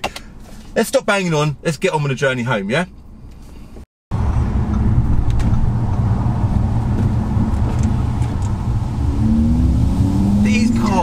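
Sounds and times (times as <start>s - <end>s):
car engine drone inside cabin: 3.0s - 11.0s.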